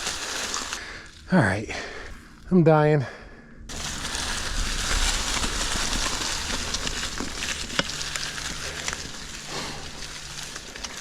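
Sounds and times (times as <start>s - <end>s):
bike tyres hissing on trail: 0.0s - 2.4s, 3.7s - 11.0s
bike clicks: 3.8s - 11.0s.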